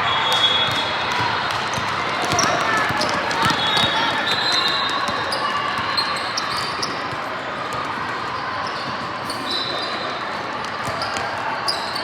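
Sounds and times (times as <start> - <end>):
din of gym hall: 0.0 - 12.0
basketball bouncing on court: 0.3 - 9.1.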